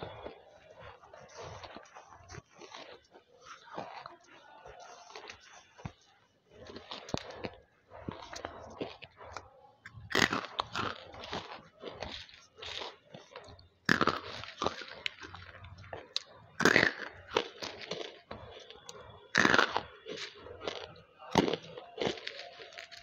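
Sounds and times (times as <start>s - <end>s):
crunchy food bitten and chewed: 0.0s - 23.0s.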